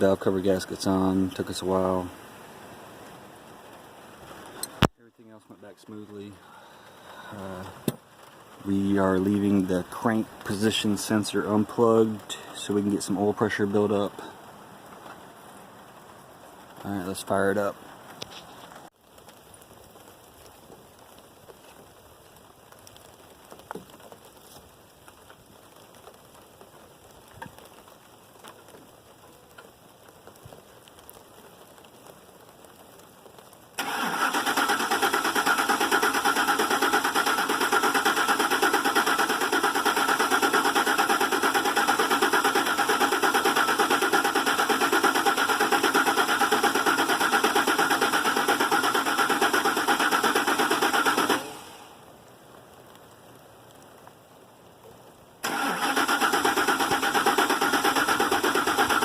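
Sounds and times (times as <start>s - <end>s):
starter motor cranking engine: 33.8s - 51.8s, 55.4s - 59.0s.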